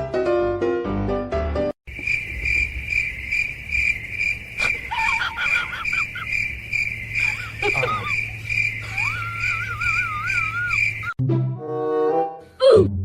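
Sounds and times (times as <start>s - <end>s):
piano music: 0.0s - 1.7s
cricket chirping: 1.9s - 11.2s
short gliding calls: 2.2s - 11.2s.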